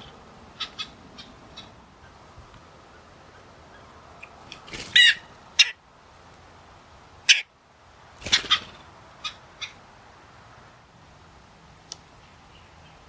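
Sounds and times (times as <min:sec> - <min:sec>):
harsh bird calls: 0:00.0 - 0:05.8, 0:07.3 - 0:07.5, 0:08.2 - 0:09.8.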